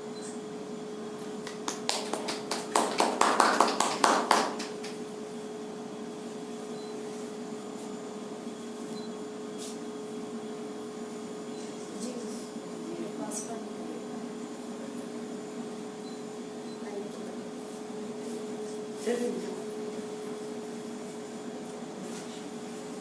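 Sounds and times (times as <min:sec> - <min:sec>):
people clapping: 0:01.4 - 0:05.1.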